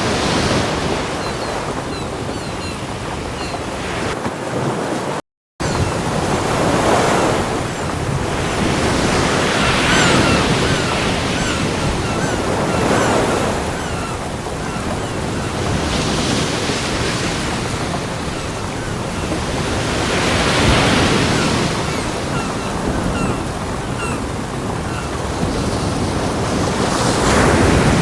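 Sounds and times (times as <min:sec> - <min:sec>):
ocean waves breaking on beach: 0:00.0 - 0:28.0.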